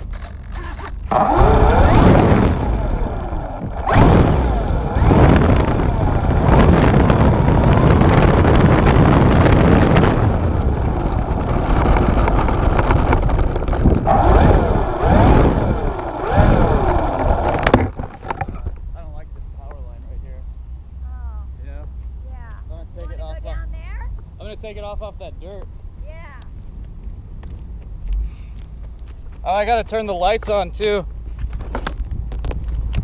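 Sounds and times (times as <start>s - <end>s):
model airplane motor and propeller: 0.0s - 18.8s.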